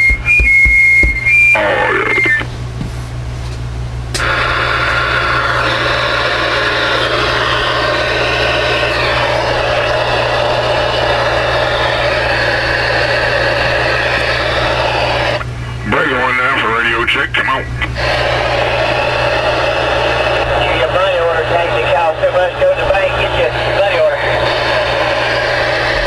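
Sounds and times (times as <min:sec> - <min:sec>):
radio low hum: 0:01.4 - 0:02.8, 0:03.9 - 0:26.0
faint garbled radio sounds: 0:01.5 - 0:02.5, 0:14.8 - 0:18.7, 0:20.2 - 0:25.2
radio static hiss: 0:01.5 - 0:02.6, 0:04.2 - 0:26.0.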